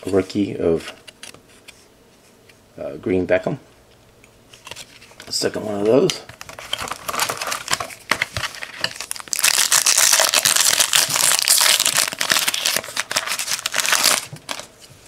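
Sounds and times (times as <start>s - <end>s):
card pack wrapper tearing: 6.6s - 7.9s, 8.5s - 14.7s.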